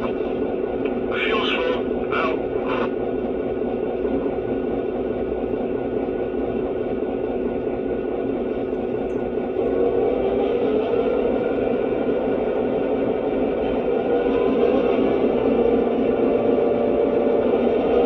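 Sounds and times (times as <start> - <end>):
diesel engine idle through small speaker: 0.0 - 13.6.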